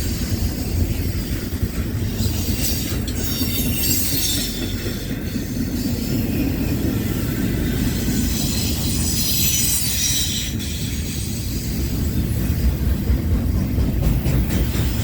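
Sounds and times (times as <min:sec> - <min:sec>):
freight train rumbling past: 0:00.0 - 0:15.0
high wheel squeal: 0:02.2 - 0:11.6.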